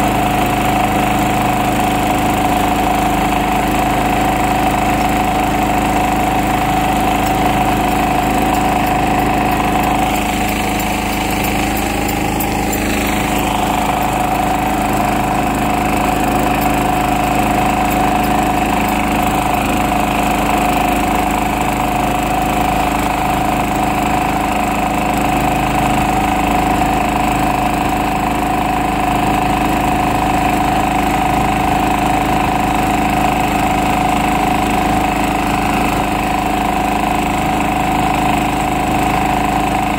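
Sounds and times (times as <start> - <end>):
tractor engine running: 0.0 - 30.5.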